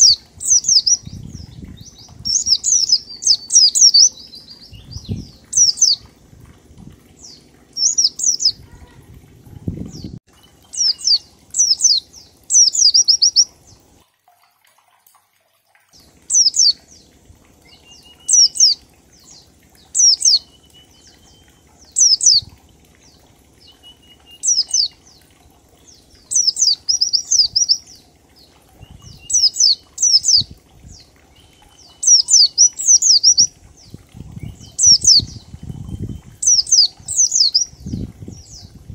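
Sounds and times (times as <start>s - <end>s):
white-eye bird singing: 0.0s - 6.2s, 7.2s - 9.0s, 9.6s - 13.9s, 16.0s - 38.8s.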